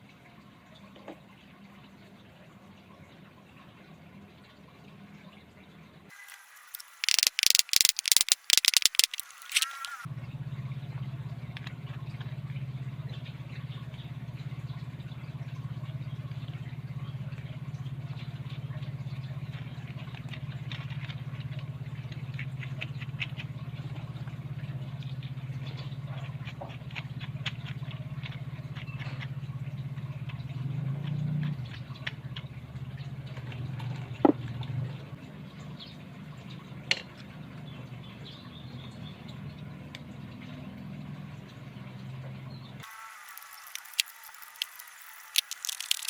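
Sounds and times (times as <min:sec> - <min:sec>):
sharp high-pitched scraping: 0:06.2 - 0:10.0, 0:42.8 - 0:46.0.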